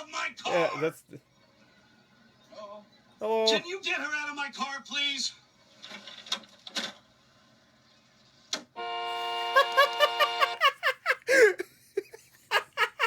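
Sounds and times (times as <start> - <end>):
car horn blaring: 8.8 - 10.7
man laughing: 9.2 - 13.0.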